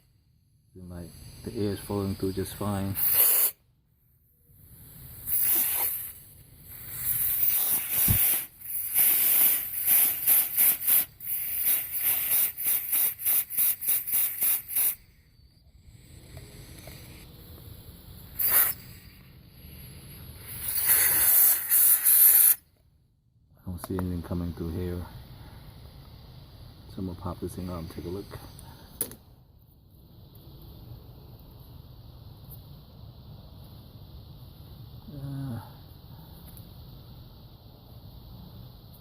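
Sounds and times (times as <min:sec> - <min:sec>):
compressed air hissing from blow gun: 0:00.0 - 0:03.7, 0:04.5 - 0:17.3, 0:18.1 - 0:22.7.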